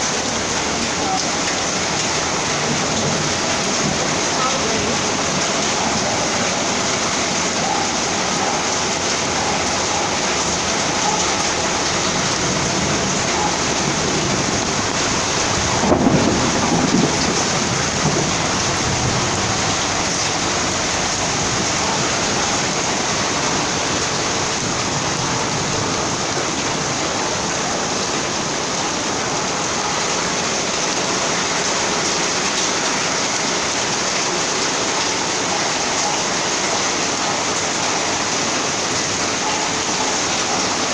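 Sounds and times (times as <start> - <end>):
heavy rain pouring: 0.0 - 40.9
thunderclap rumbling: 11.6 - 27.6.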